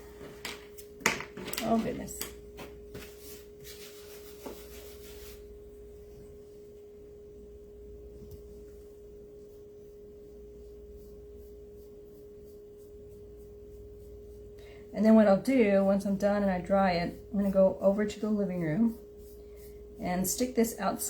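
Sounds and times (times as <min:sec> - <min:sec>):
faint single-pitched hum: 0:05.4 - 0:20.2.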